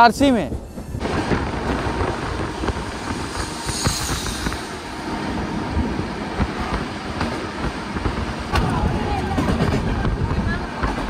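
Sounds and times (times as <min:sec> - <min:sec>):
train wheels rumbling on rails: 0:00.0 - 0:11.0
brief hiss: 0:03.0 - 0:04.8.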